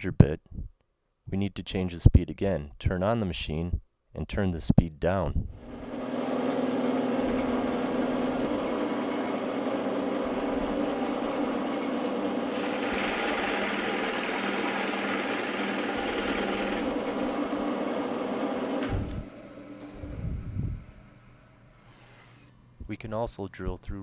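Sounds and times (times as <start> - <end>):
drill press motor running: 5.6 - 22.6
drill bit cutting into board: 5.7 - 19.2.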